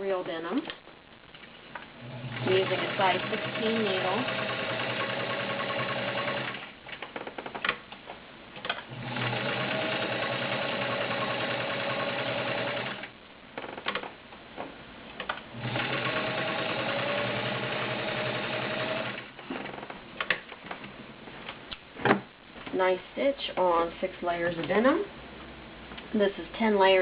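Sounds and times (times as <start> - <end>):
sewing machine stitching: 2.0 - 6.7, 8.9 - 13.1, 15.6 - 19.7.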